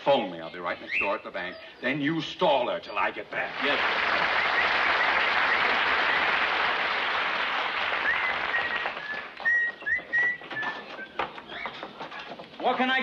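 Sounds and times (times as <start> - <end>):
birds chirping: 0.0 - 6.9, 7.8 - 13.0
audience applause: 3.4 - 9.5.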